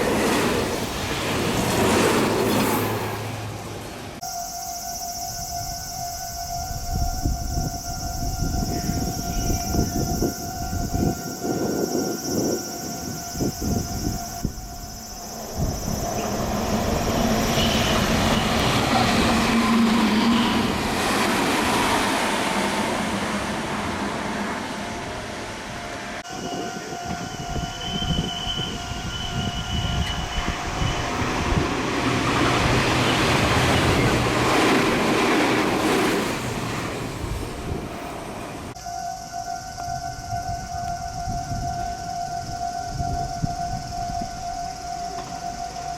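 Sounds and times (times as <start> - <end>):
electric train passing at speed: 0.0 - 45.9
steady high tone: 4.2 - 36.2, 37.7 - 45.9
wind rumble on microphone: 5.4 - 24.0, 26.3 - 38.8, 39.6 - 45.3.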